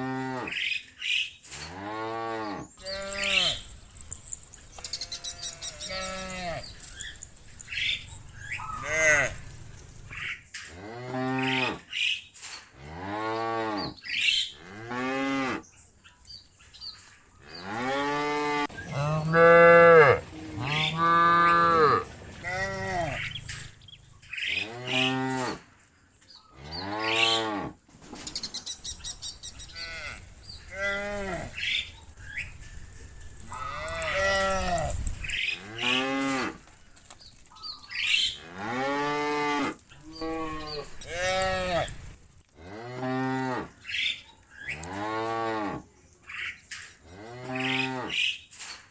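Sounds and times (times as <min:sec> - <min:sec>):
cows mooing: 0:01.7 - 0:11.8, 0:17.5 - 0:25.6, 0:29.6 - 0:32.0, 0:33.3 - 0:36.6, 0:38.3 - 0:43.8, 0:47.1 - 0:48.2.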